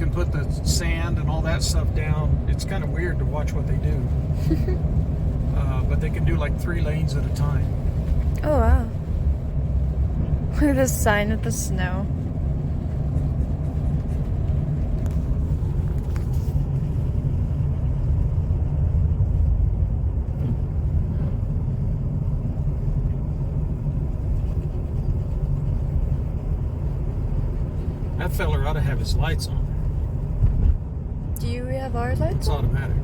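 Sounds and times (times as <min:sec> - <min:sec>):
road and engine rumble in car: 0:00.0 - 0:33.0.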